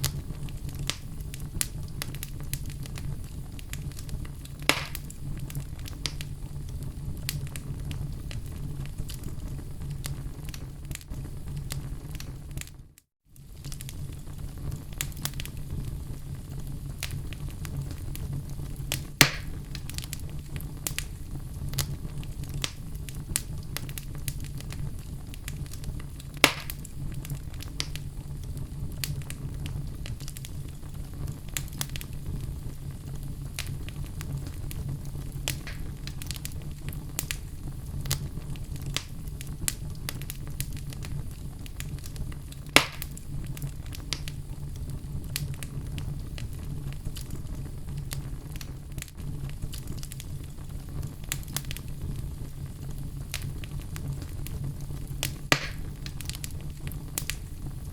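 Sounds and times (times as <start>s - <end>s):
sharp loud pops of fire: 0.0s - 6.3s, 18.8s - 21.1s, 21.7s - 28.1s, 33.6s - 44.5s, 55.2s - 57.6s
fire crackling in fireplace: 0.0s - 57.9s
low rumble of fire: 0.0s - 57.9s.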